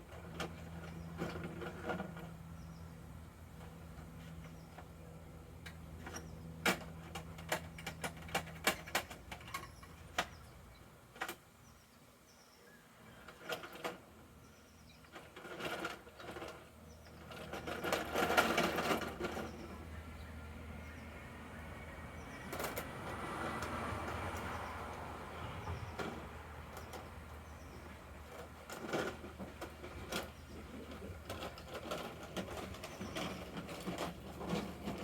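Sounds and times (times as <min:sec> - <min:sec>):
plastic toy clattering and rustling: 0:06.0 - 0:10.4, 0:13.2 - 0:14.2, 0:15.1 - 0:19.8, 0:28.2 - 0:35.0.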